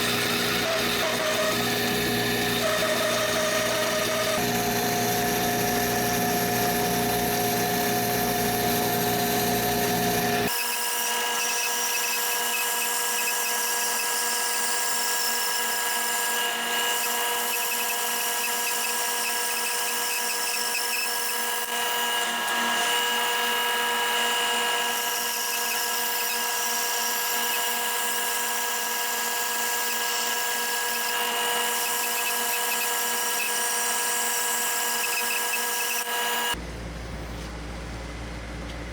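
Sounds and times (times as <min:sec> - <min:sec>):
power tool whining: 0:00.0 - 0:36.6.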